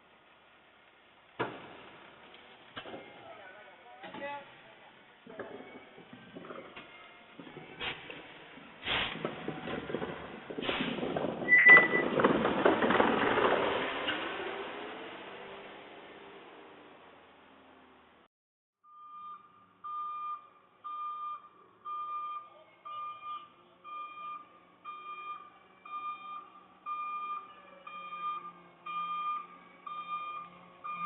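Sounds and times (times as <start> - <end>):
backup alarm beeping: 18.8 - 31.0.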